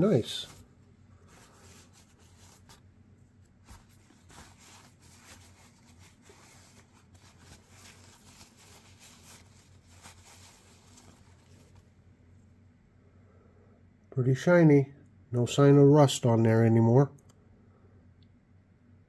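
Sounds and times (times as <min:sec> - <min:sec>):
handling clicks and rustles: 0:00.0 - 0:11.9
low steady hum: 0:00.0 - 0:19.0.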